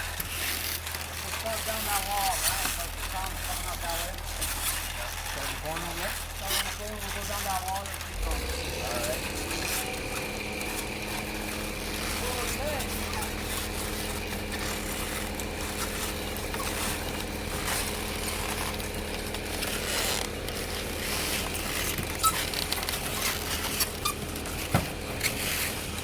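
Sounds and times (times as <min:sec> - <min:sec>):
diesel engine droning: 0:01.3 - 0:26.0.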